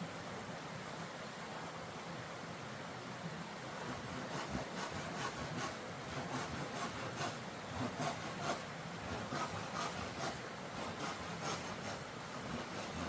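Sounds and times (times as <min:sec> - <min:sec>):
steady background hiss: 0:00.0 - 0:13.0
scraping strokes: 0:03.8 - 0:13.0.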